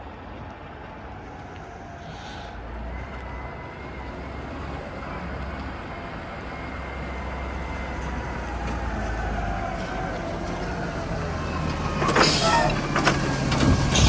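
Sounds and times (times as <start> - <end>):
faint whine: 1.0 - 6.4
garbage truck engine running: 2.6 - 14.0.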